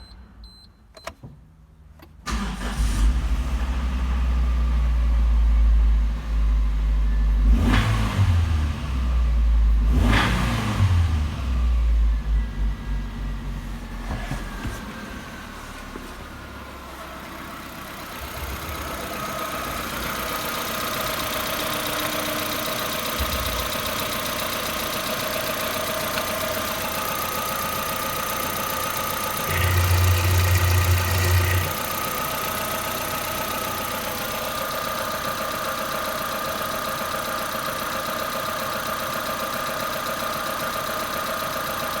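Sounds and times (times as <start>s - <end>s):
car engine idling: 11.7s - 42.0s.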